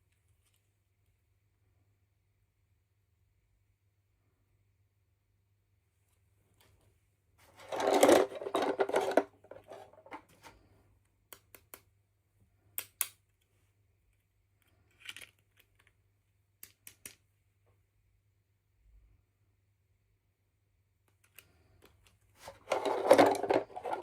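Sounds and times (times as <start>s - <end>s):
small plastic pieces clicking: 14.6s - 16.0s, 16.6s - 17.2s
plastic packaging crinkling: 22.4s - 24.0s.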